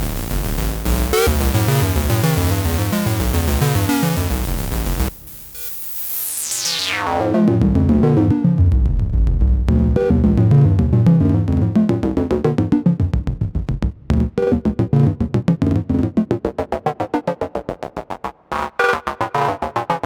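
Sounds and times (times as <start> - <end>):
synthesizer sequenced pattern: 0.0 - 7.3
high synth pitch sweeping down: 0.0 - 7.4.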